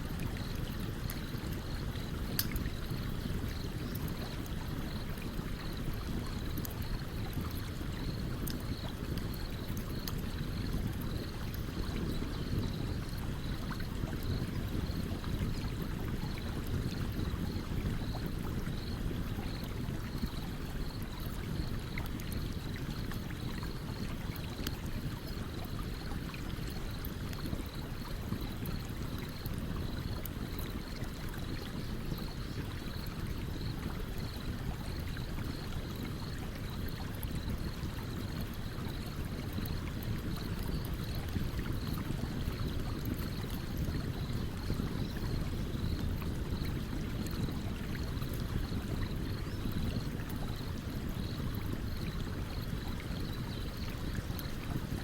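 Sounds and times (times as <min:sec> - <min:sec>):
stream water running: 0:00.0 - 0:55.0
campfire crackling and popping: 0:00.2 - 0:04.7, 0:05.8 - 0:19.2, 0:39.5 - 0:44.8.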